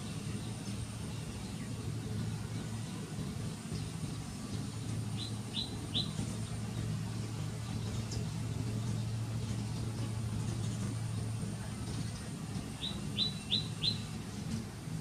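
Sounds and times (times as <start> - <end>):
steady low hum: 0.0 - 15.0
bird chirping: 4.7 - 6.6, 12.7 - 14.2.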